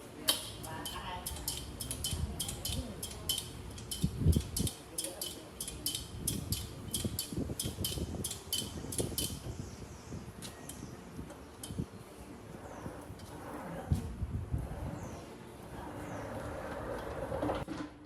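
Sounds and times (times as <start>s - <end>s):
light metallic clicks and clinks: 0.2s - 9.5s.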